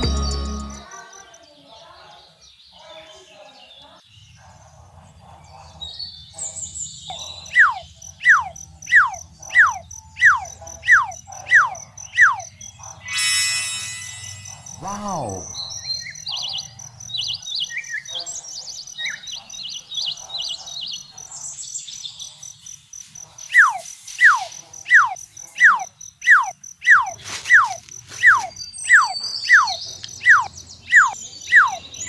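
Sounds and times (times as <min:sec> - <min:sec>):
birds chirping: 0:00.0 - 0:04.4, 0:05.1 - 0:13.0, 0:14.4 - 0:32.0
pulsing high insect trill: 0:07.6 - 0:15.6, 0:23.5 - 0:31.8
falling bird whistle call: 0:23.5 - 0:31.8.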